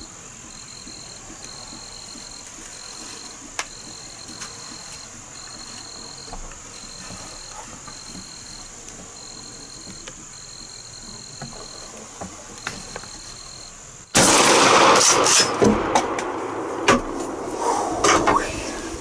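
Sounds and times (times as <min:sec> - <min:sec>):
insects or frogs calling: 0:00.0 - 0:15.5
shotgun blast: 0:14.1 - 0:17.1.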